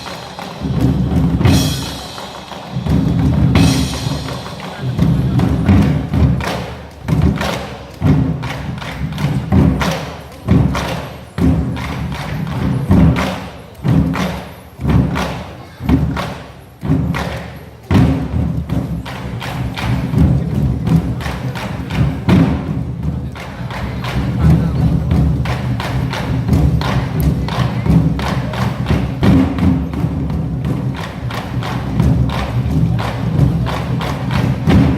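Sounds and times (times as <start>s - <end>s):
large drums beating in unison: 0.0s - 34.9s.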